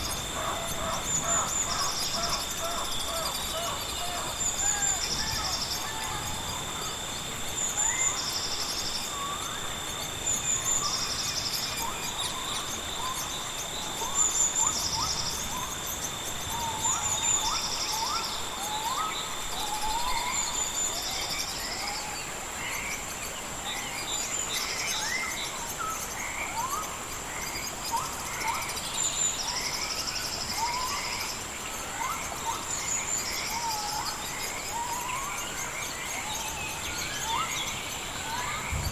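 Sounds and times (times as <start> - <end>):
birds chirping: 0.0 - 8.2
high-pitched insect drones: 0.0 - 38.9.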